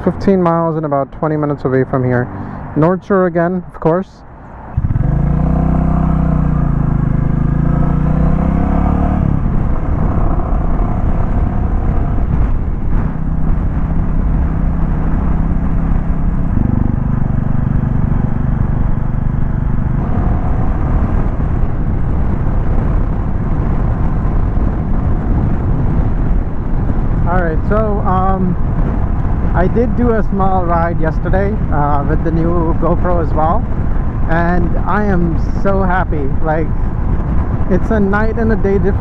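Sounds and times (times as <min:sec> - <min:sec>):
motorcycle engine running: 0:04.7 - 0:29.8.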